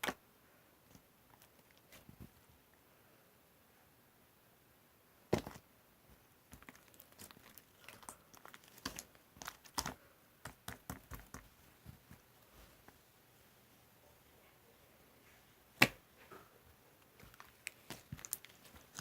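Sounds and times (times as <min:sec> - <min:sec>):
crinkling and clicking handling noises: 0:00.9 - 0:02.5, 0:05.4 - 0:13.0, 0:15.8 - 0:19.0.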